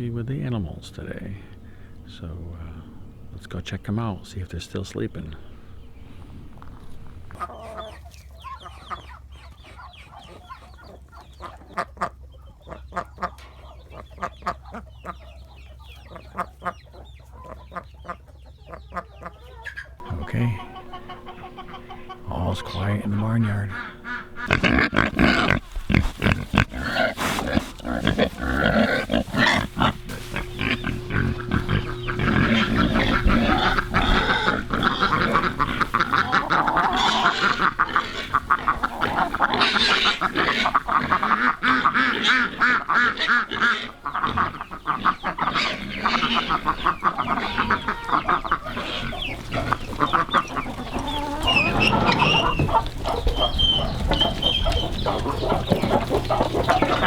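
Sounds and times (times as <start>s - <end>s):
pig grunts: 0.0s - 7.5s, 20.0s - 57.0s
ducks quacking: 0.0s - 57.0s.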